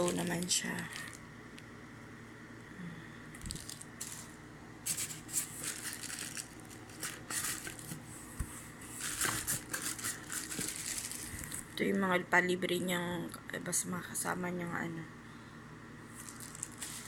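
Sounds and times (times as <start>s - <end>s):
plastic packaging rustling: 0.0s - 1.3s, 3.4s - 11.8s, 16.1s - 17.0s.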